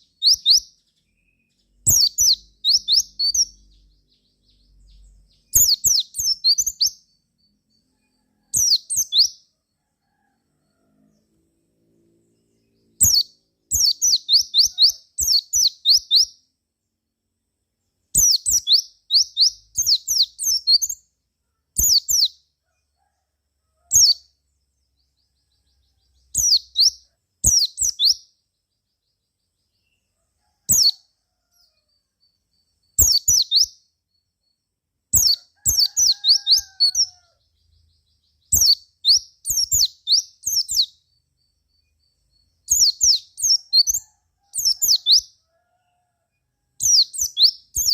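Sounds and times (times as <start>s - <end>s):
bird singing high chirps: 0.0s - 9.5s, 12.3s - 16.4s, 18.1s - 21.1s, 21.8s - 22.4s, 23.9s - 24.3s, 25.0s - 30.0s, 30.7s - 31.0s, 31.6s - 45.4s, 46.8s - 47.9s.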